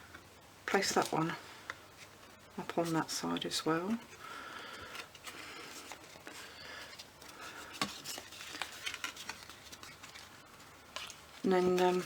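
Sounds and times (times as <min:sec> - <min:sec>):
card stock rustling and tapping: 0:04.8 - 0:12.0.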